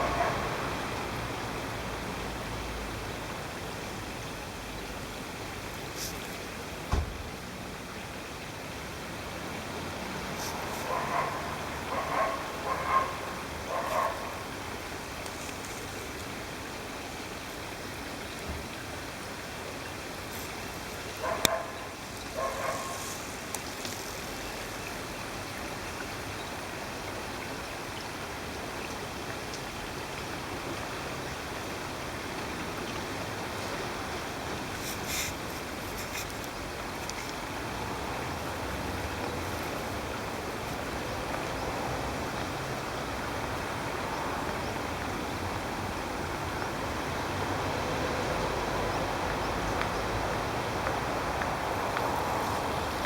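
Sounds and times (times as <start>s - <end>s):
mountain stream rushing: 0.0s - 53.0s.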